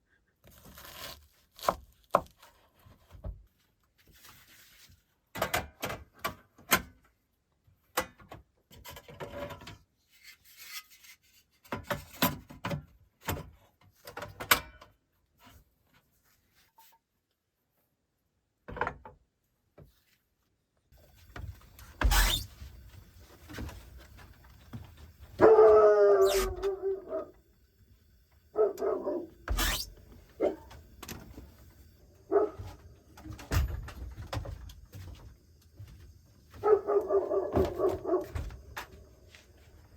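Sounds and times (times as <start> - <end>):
dog barking and whining: 25.3 - 27.4, 28.5 - 30.8, 32.2 - 32.8, 36.6 - 38.4.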